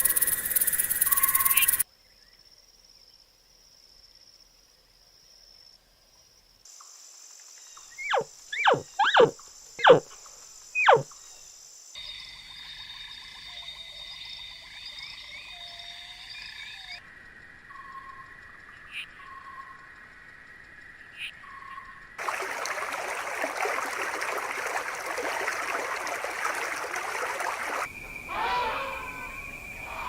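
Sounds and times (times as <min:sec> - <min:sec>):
chorus of high tones and chirps: 0:00.0 - 0:01.8
high insect-like buzz: 0:00.0 - 0:01.8, 0:08.0 - 0:11.1
animal calls falling in pitch: 0:08.1 - 0:10.0, 0:10.8 - 0:11.1, 0:22.8 - 0:30.0.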